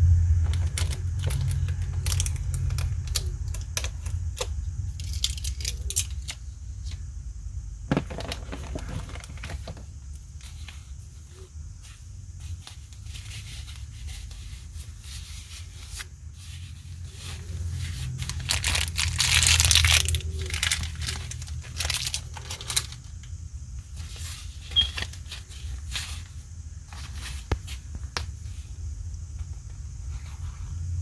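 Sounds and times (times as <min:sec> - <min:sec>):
steady low hum: 0:00.0 - 0:31.0
packaging rustling and crinkling: 0:00.5 - 0:06.3, 0:16.7 - 0:23.2
packaging tearing: 0:18.2 - 0:23.0.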